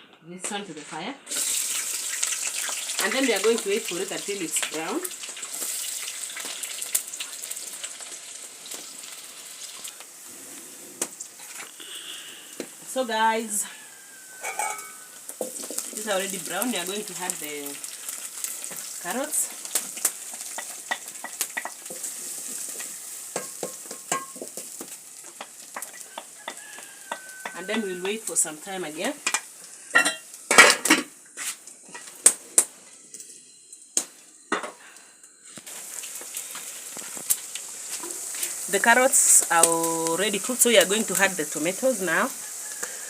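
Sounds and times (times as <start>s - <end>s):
onions sizzling in hot fat: 0.9s - 43.0s
spoon scraping metal pot: 14.4s - 15.8s.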